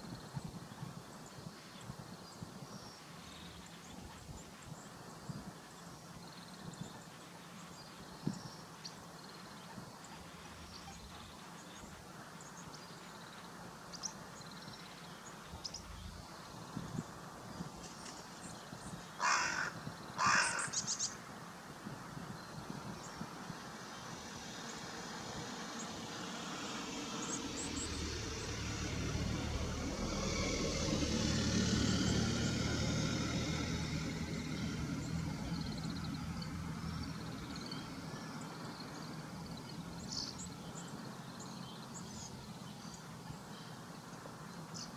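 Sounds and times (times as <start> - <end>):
crow cawing: 19.2 - 20.8
road vehicle noise: 22.6 - 44.9.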